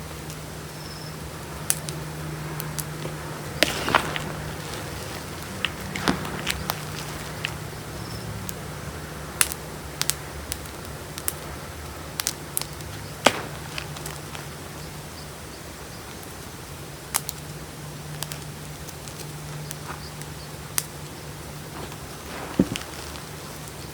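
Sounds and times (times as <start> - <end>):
steady low hum: 0.0 - 23.9
chalk crumbling between fingers: 2.6 - 7.8.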